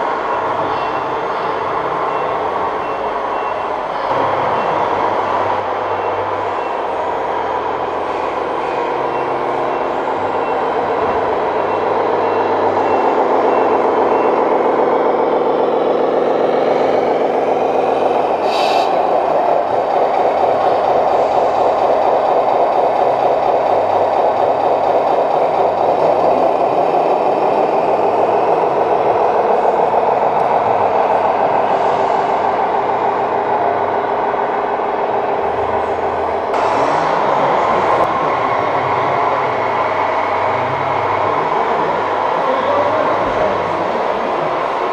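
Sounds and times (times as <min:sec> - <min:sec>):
truck engine running: 0:00.0 - 0:44.9
reversing beeper beeping: 0:00.3 - 0:04.9, 0:05.9 - 0:07.0, 0:08.4 - 0:15.0
air brake hiss: 0:18.4 - 0:19.0.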